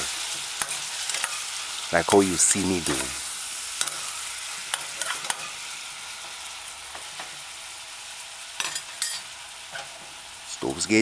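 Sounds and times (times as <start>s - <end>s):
food sizzling in hot oil: 0.0s - 11.0s
metal spoon scraping a pan: 0.2s - 1.6s, 3.7s - 7.3s, 8.6s - 10.1s.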